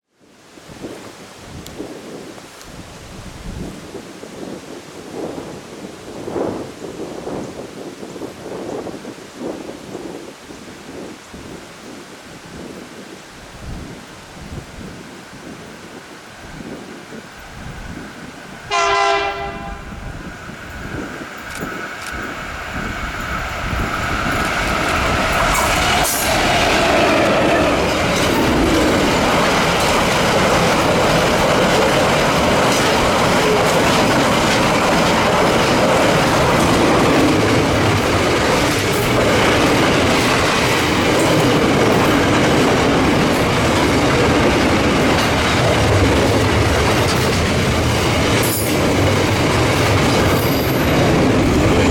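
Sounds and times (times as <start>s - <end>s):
freight train rumbling past: 17.1s - 51.9s.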